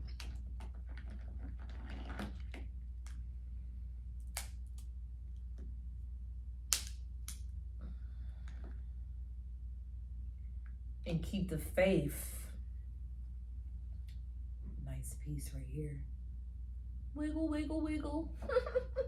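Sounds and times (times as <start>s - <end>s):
steady low hum: 2.4s - 19.0s
crab shells cracking: 4.2s - 5.0s, 6.7s - 7.4s.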